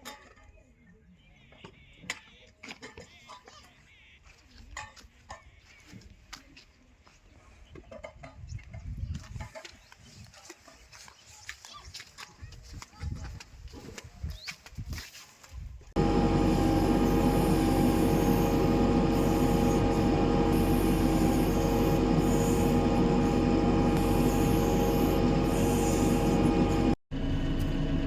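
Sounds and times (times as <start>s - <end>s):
diesel machinery running: 16.0s - 28.0s.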